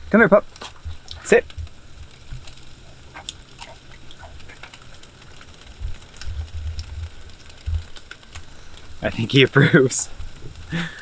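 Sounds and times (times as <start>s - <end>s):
low rumbling thumps: 0.0s - 5.0s, 5.7s - 8.0s
dog chewing and licking: 0.4s - 8.5s.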